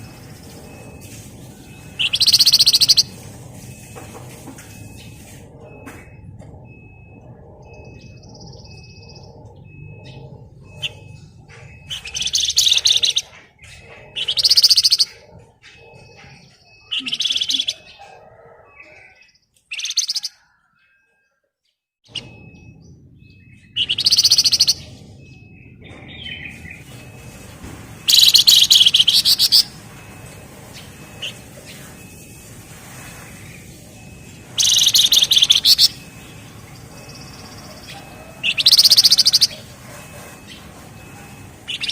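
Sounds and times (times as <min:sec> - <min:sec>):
bird rattling trill song: 0:00.0 - 0:04.0, 0:10.0 - 0:17.9, 0:23.4 - 0:24.9, 0:25.6 - 0:41.9
faint high peep: 0:00.0 - 0:41.9.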